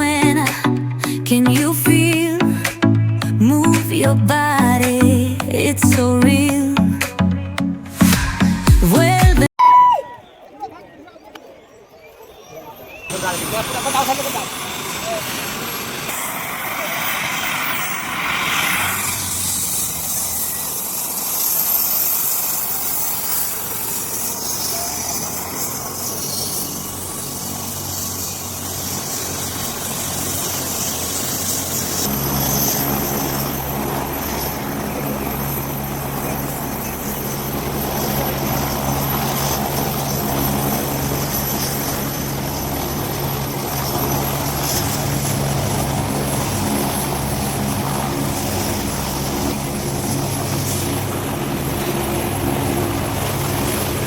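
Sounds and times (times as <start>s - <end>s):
helicopter rotor and engine: 12.2s - 54.0s.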